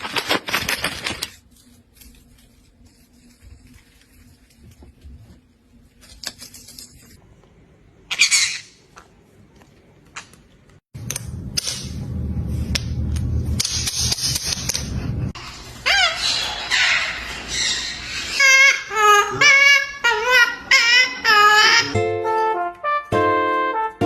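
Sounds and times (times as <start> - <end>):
parrot squawking: 8.1 - 8.8, 15.4 - 22.0
music: 21.9 - 24.0.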